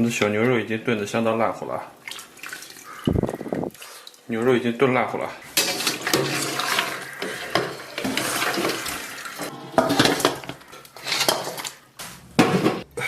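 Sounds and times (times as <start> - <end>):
metal pots clattering: 5.4 - 11.8, 12.4 - 12.9.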